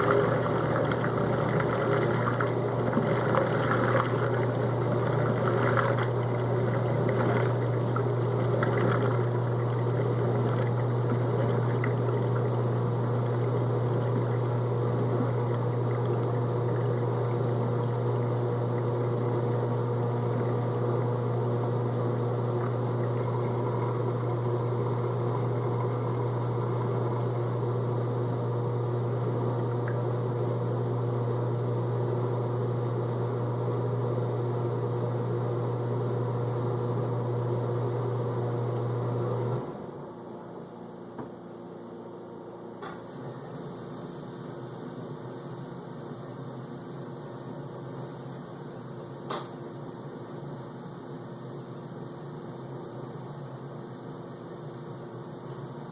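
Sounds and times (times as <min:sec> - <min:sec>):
water sloshing: 0:00.0 - 0:18.1
dishwasher drain pump humming: 0:00.0 - 0:55.9.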